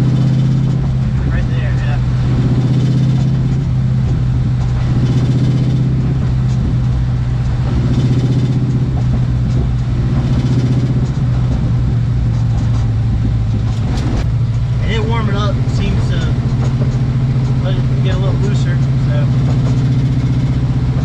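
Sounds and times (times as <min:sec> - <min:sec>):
car engine and exhaust drone: 0:00.0 - 0:21.0.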